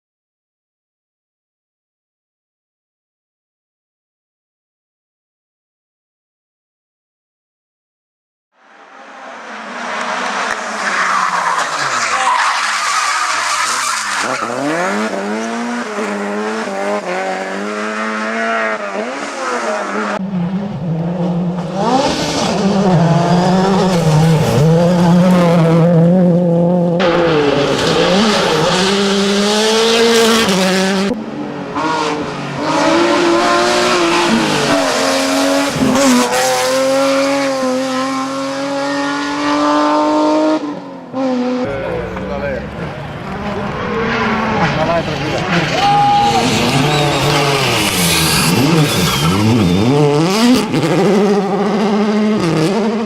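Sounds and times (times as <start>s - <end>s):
racing car engines revving: 8.6s - 53.0s
tyres squealing: 10.7s - 14.8s, 45.5s - 50.2s.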